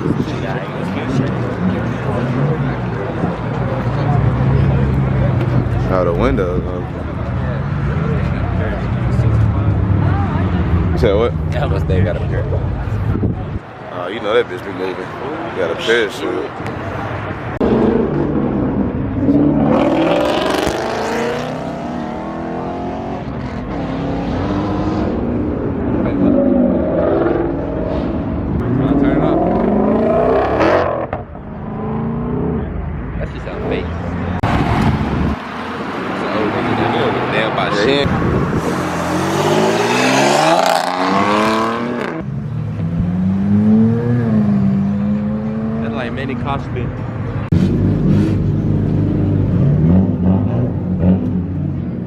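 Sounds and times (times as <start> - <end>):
car engine revving: 17.0 - 52.0.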